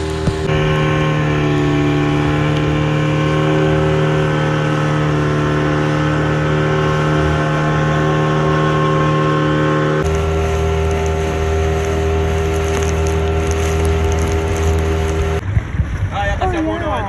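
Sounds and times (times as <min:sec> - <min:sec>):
outboard motor droning: 0:00.0 - 0:16.1.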